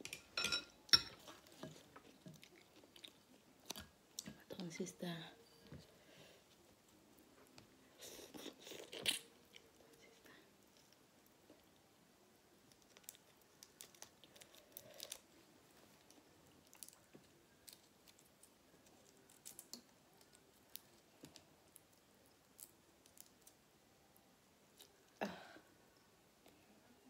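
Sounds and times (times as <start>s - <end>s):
person chewing food: 1.2s - 4.3s, 6.8s - 10.0s.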